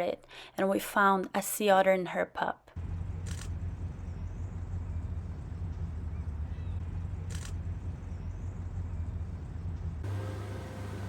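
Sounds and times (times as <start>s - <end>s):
boat engine idling: 8.0s - 11.0s.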